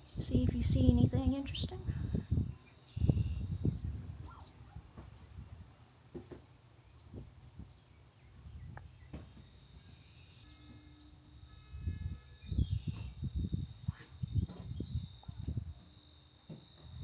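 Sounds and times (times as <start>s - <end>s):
insect drone: 1.8s - 4.5s, 6.7s - 17.0s
faint bird chirps: 2.1s - 4.8s, 6.8s - 16.9s
light knocks: 6.1s - 6.5s.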